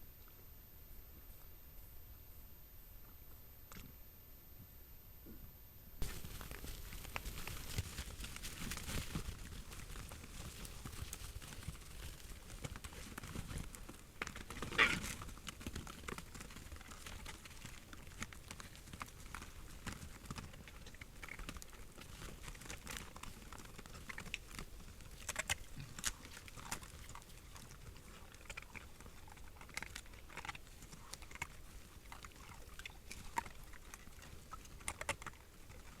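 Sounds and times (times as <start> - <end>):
animal footsteps on forest floor: 6.0 - 36.0
small cracks and crunching: 6.0 - 36.0.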